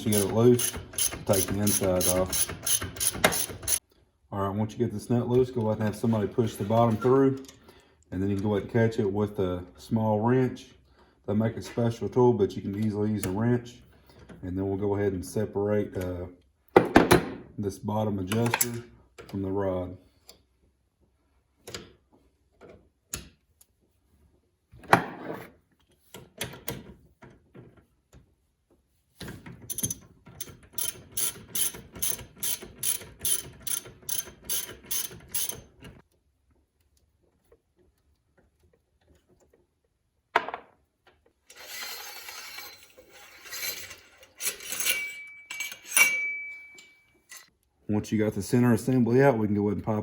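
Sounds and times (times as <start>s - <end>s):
parts rubbing: 0.0s - 3.8s, 41.2s - 46.1s
ratchet-like clicks: 0.0s - 3.8s, 29.7s - 35.7s.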